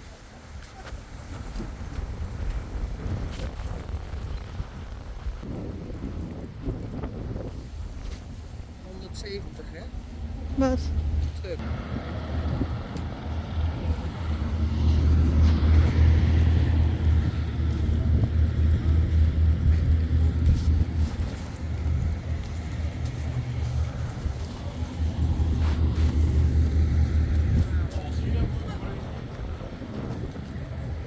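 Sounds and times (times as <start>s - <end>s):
truck engine rumbling: 8.2s - 31.0s.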